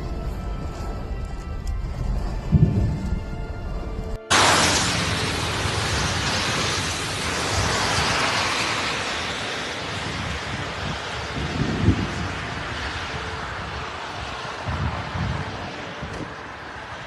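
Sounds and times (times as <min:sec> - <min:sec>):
wind: 0:00.0 - 0:17.0
pouring rain: 0:04.3 - 0:17.0.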